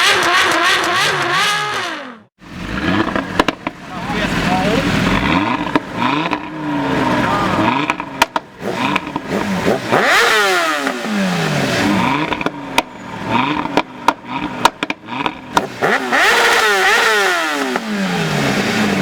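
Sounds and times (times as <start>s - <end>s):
car engine revving: 0.0s - 19.0s
exhaust crackles and pops: 2.5s - 9.5s, 12.0s - 16.3s.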